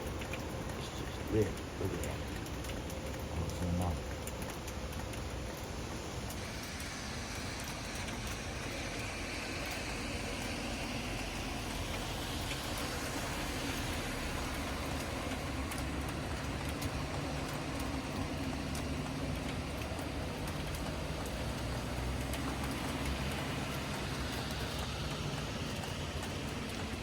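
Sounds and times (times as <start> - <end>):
raindrop ticks: 0.0 - 27.0
steady rain falling: 0.0 - 27.0.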